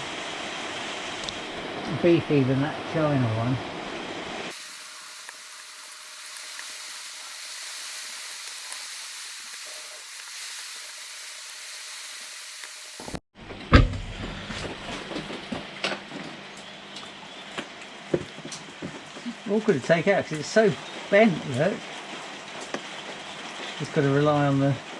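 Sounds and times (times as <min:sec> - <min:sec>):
steady hiss: 0:00.0 - 0:13.2.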